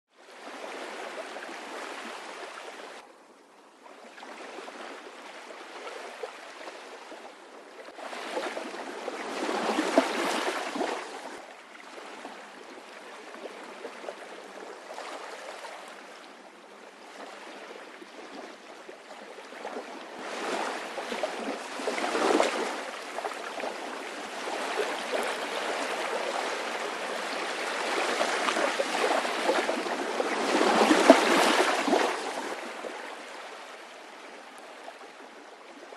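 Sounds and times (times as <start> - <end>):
sea waves breaking: 7.9 - 16.4, 17.0 - 35.2.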